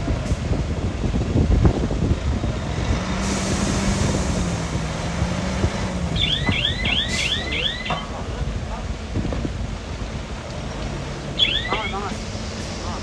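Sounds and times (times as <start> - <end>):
diesel engine rumbling and clanking: 0.0 - 13.0
rapid high chirps: 6.2 - 8.0, 11.4 - 12.1.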